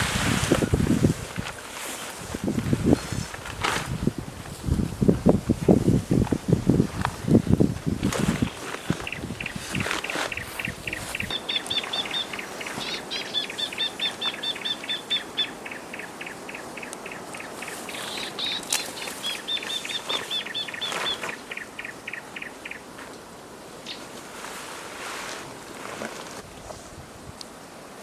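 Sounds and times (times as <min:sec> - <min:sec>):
bird chirping rapidly: 0:09.0 - 0:22.8.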